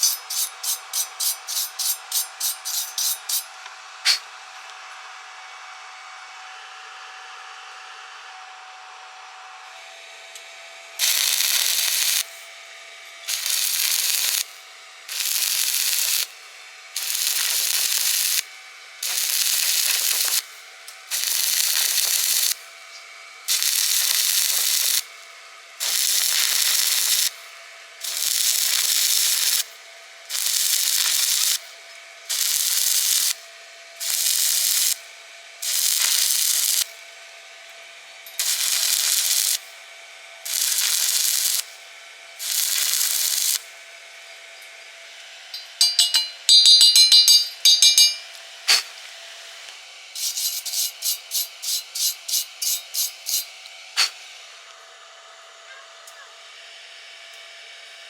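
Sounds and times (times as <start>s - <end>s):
welding arc crackling: 0.0s - 3.5s, 11.0s - 12.5s, 13.2s - 22.7s, 23.4s - 37.1s, 38.4s - 39.8s, 40.4s - 41.8s, 42.4s - 43.8s, 45.6s - 49.1s, 50.1s - 54.4s.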